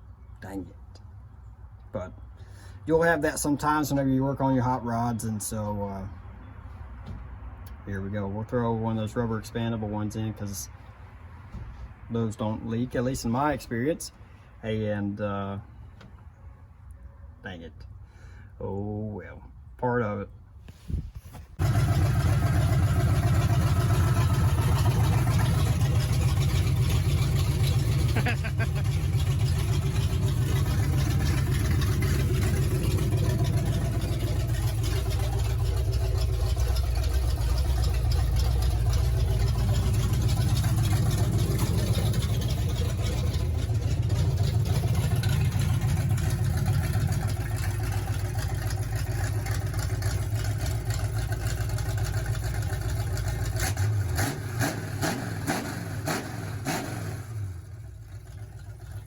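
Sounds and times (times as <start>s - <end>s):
engine idling with deep rumble: 21.6s - 59.0s.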